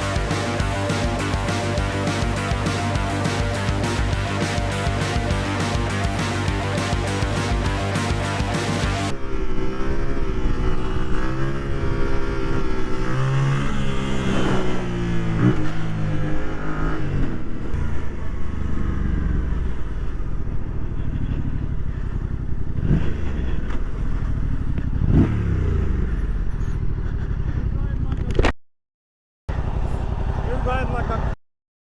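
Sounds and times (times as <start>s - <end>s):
motorcycle engine running: 0.0s - 9.2s
road and wind rumble: 9.0s - 28.5s, 29.5s - 31.3s.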